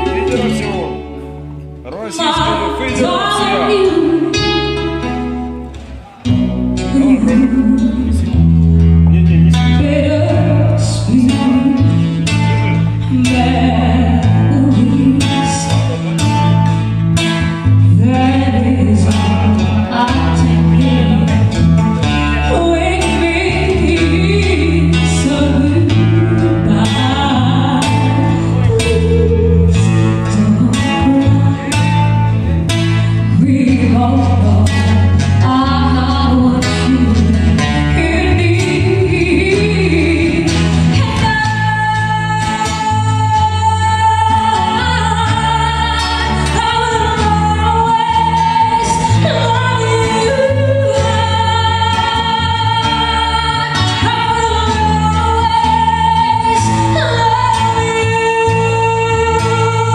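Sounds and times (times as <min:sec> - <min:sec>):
man singing: 0:00.0 - 0:01.1, 0:01.9 - 0:04.2
guitar bass and drums: 0:00.0 - 0:59.9.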